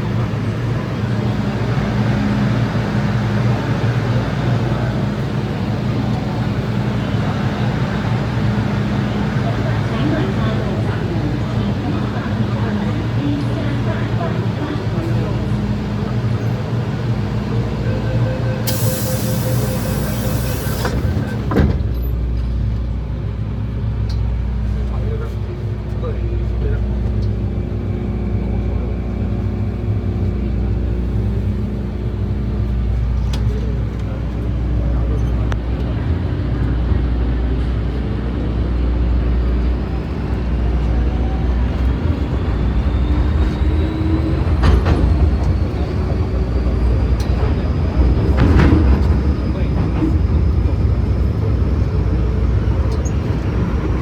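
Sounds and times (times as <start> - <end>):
train low hum and whine: 0.0 - 54.0
air hiss burst: 18.7 - 21.0.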